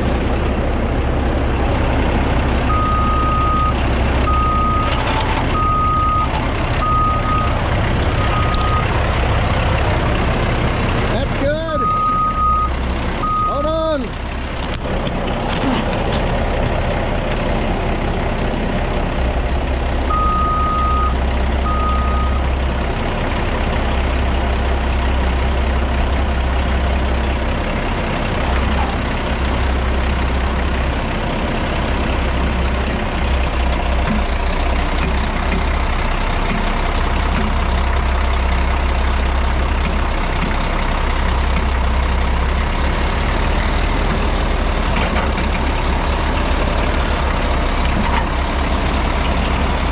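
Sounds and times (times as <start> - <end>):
heavy diesel machinery rumbling: 0.0 - 49.9
backup alarm beeping: 11.8 - 13.6.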